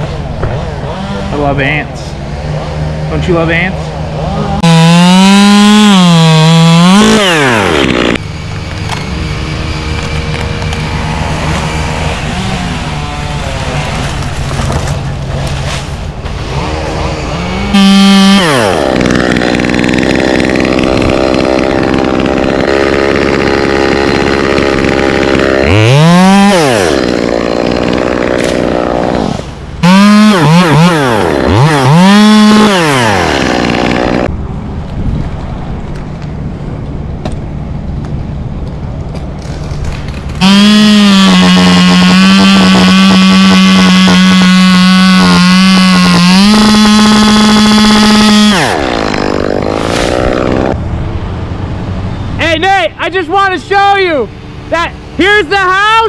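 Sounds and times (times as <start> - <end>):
chainsaw revving: 0.5 - 1.8, 4.1 - 8.2, 8.8 - 15.2, 16.3 - 34.3, 39.4 - 50.8.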